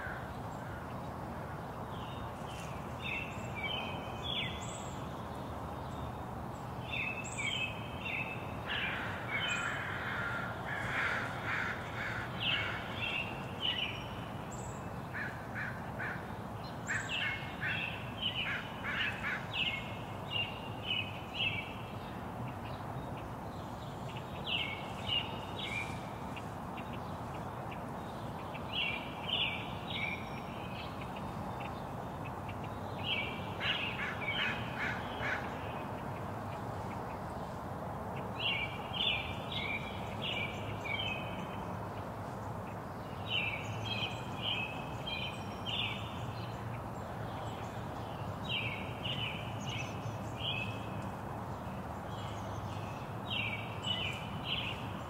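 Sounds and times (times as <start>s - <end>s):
background hiss: 0.0s - 55.0s
birds chirping and calling: 6.9s - 21.7s.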